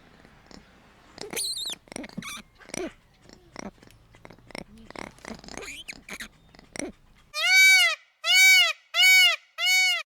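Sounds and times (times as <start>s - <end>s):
young pet squeaking: 0.2s - 7.6s.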